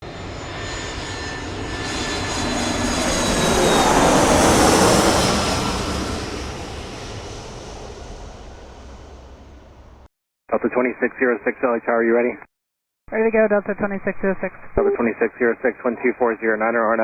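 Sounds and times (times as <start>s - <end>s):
jet airliner engine roar: 0.0s - 10.1s.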